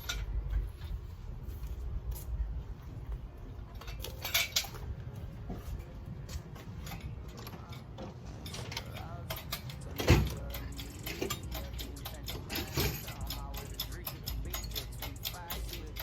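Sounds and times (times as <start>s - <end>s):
metal parts clattering: 0.0s - 1.1s, 3.7s - 4.9s, 5.8s - 16.0s
steady low rumble: 0.0s - 16.0s
metallic clinks of hand tools: 3.8s - 4.9s, 6.6s - 16.0s.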